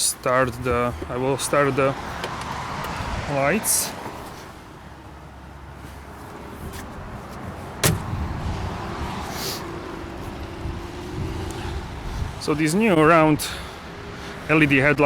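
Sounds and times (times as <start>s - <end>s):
road traffic rumble: 0.0s - 15.0s
wind on microphone: 2.9s - 3.3s, 7.9s - 12.4s
sharp car click: 7.8s - 8.1s.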